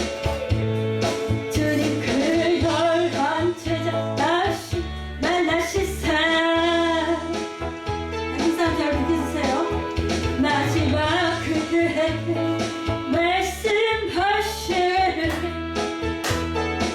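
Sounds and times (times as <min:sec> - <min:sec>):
guitar accompaniment: 0:00.0 - 0:16.9
woman singing worship song: 0:01.5 - 0:07.3, 0:10.4 - 0:15.6.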